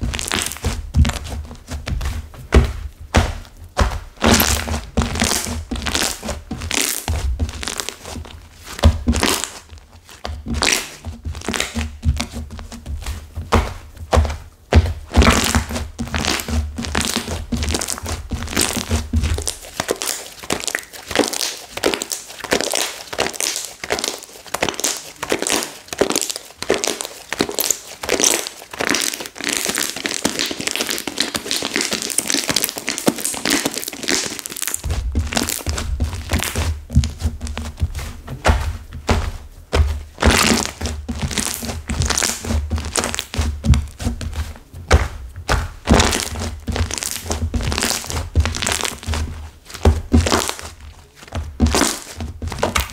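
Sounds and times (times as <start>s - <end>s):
dull thuds: 0.0s - 9.4s, 10.2s - 19.7s, 34.8s - 52.9s
slime crackling and crinkling: 0.0s - 52.9s.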